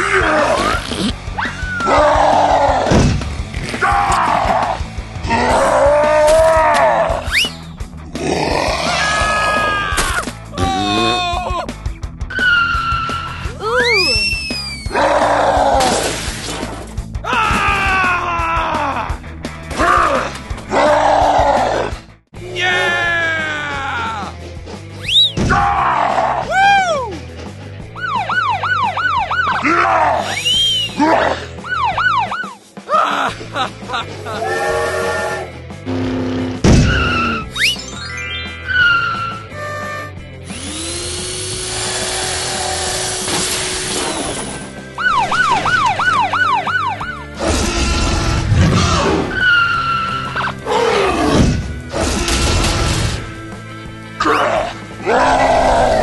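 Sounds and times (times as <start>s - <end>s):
background music: 0.0s - 56.0s
swooping whistle-like tones: 7.3s - 7.7s, 13.8s - 14.9s, 25.0s - 25.4s, 30.3s - 31.0s, 37.0s - 40.1s
cartoon police siren: 28.0s - 29.7s, 31.6s - 32.6s, 38.6s - 39.9s, 45.0s - 47.3s.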